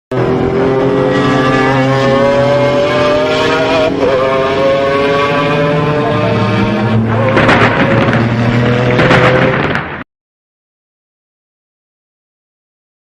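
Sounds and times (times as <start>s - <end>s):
vehicle engine accelerating: 0.1s - 10.0s.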